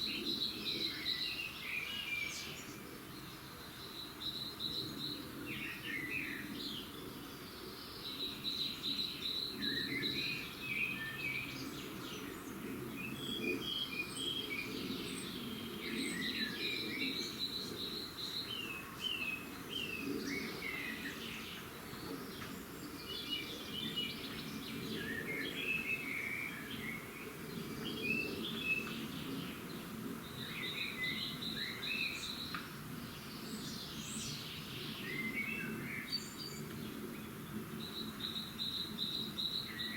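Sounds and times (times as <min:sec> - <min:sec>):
faint background noise: 0:00.0 - 0:39.9
songbirds singing: 0:00.0 - 0:39.9.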